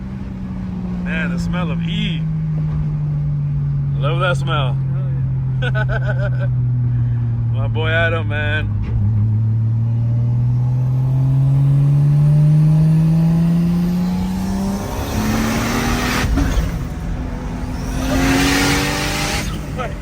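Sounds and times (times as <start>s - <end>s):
turbo car engine accelerating: 0.0s - 20.0s
rush of noise: 14.0s - 20.0s.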